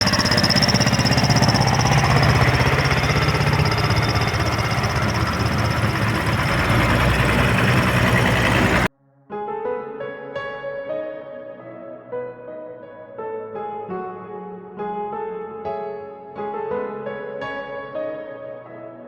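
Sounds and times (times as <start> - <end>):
tractor diesel engine running: 0.0 - 8.9.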